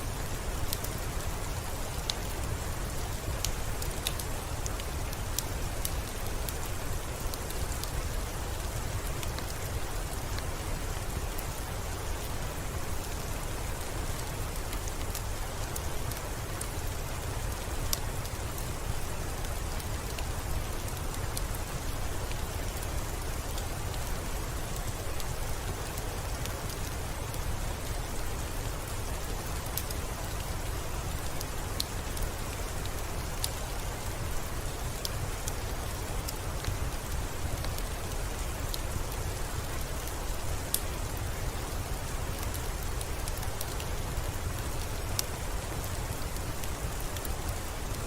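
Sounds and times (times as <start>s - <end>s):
steady rain hiss: 0.0s - 48.0s
raindrop ticks: 1.6s - 48.0s.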